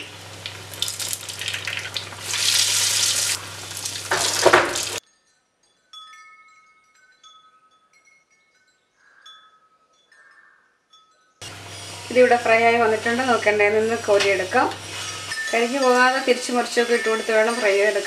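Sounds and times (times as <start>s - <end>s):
food deep-frying in oil: 0.0s - 5.0s, 11.4s - 18.0s
metal skimmer scraping a pan: 13.1s - 18.0s
soft chime notes: 15.0s - 18.0s.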